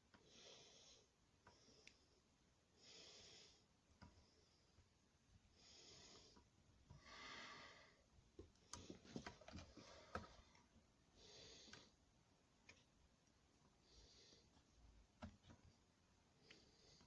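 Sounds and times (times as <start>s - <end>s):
soft breaths through nose: 0.2s - 12.0s, 13.7s - 14.8s, 16.4s - 17.0s.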